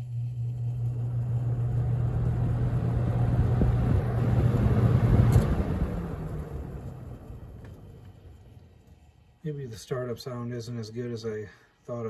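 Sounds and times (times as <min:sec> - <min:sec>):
box fan motor hum and air: 0:00.0 - 0:09.4
fan switch click: 0:05.1 - 0:05.9.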